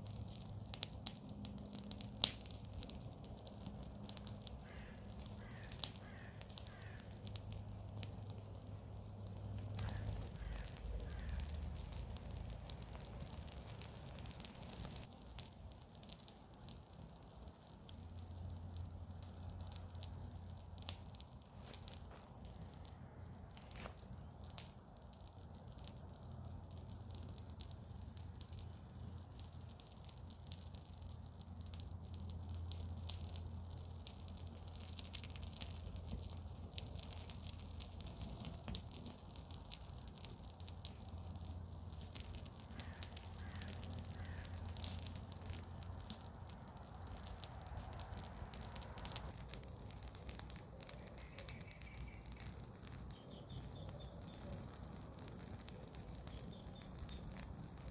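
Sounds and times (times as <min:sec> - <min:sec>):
bonfire crackling and popping: 0:00.0 - 0:57.9
faint bird calls: 0:04.6 - 0:07.2, 0:09.7 - 0:11.9, 0:42.7 - 0:44.6, 0:50.5 - 0:57.6.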